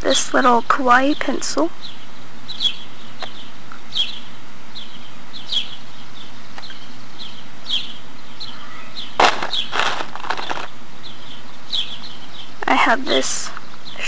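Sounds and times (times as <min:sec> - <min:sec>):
small bird chirping: 0:01.8 - 0:14.0
sharp knock: 0:09.2 - 0:10.6.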